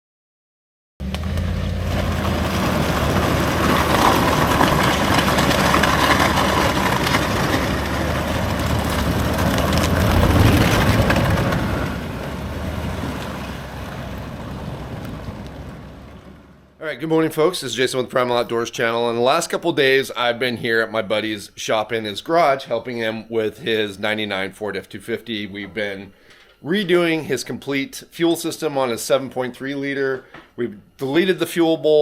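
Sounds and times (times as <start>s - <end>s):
road and wind noise: 1.0s - 16.8s
vehicle engine hum: 1.0s - 16.8s.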